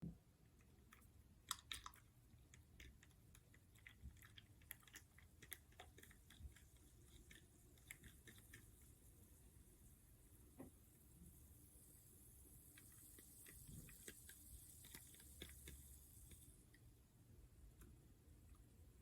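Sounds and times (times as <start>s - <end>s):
person chewing: 0.8s - 8.4s.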